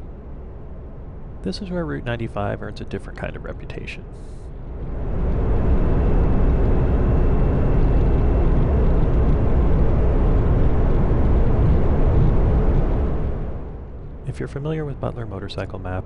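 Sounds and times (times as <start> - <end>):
motorcycle engine and wind rush: 4.7 - 13.8.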